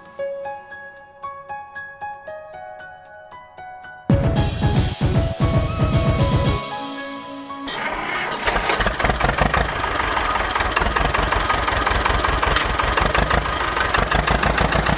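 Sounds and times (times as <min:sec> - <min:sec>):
small engine running: 0:07.8 - 0:14.9.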